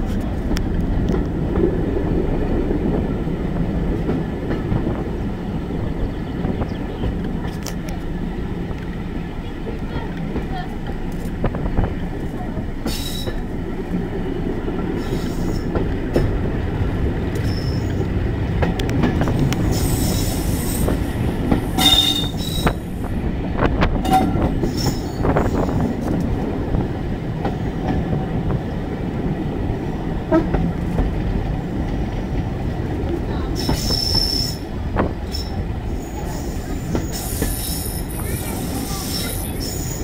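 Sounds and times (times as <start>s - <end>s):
train wheels rumbling on rail: 0.0s - 40.0s
wheel squeals: 17.4s - 18.0s, 21.8s - 22.8s, 33.6s - 34.6s.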